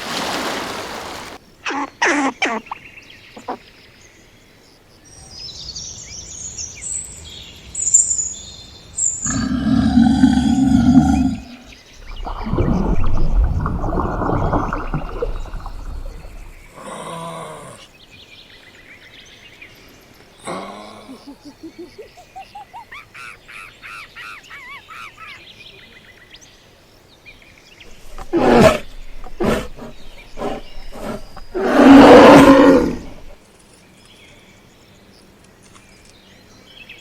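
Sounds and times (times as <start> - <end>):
animal calls: 27.9 - 33.4.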